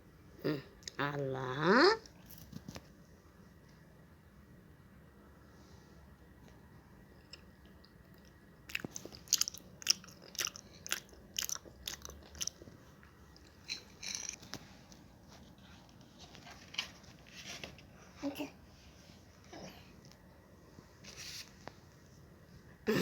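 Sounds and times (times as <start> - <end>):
crunchy biting and chewing: 8.3 - 12.8.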